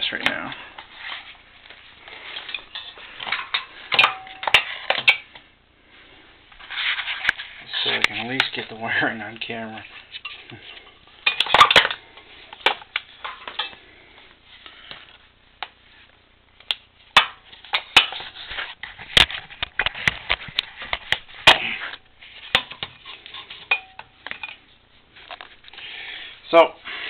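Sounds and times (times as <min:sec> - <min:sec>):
tools and parts clattering: 0:02.3 - 0:05.4, 0:09.9 - 0:13.8, 0:17.2 - 0:25.5.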